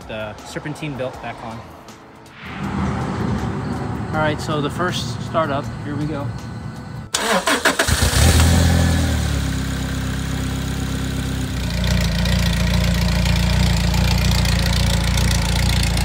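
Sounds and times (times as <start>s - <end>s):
car engine revving and idling: 2.6s - 16.0s
engine cranking: 7.1s - 8.7s.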